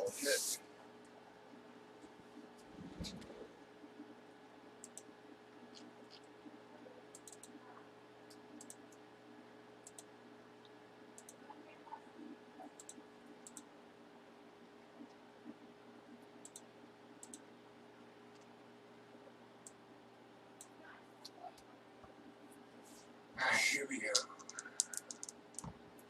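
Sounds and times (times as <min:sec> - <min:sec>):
low steady hum: 0:00.0 - 0:26.0
sharp clicks: 0:24.2 - 0:25.7.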